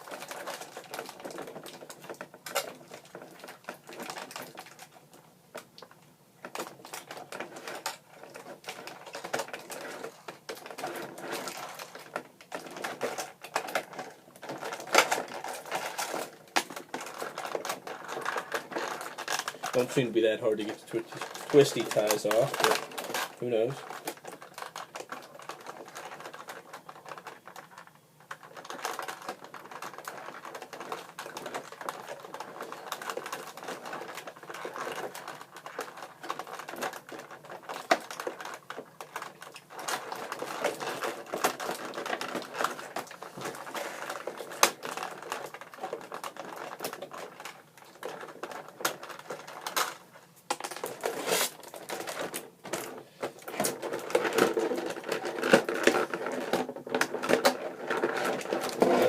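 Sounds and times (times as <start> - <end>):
plastic packaging crinkling: 0.0 - 59.0.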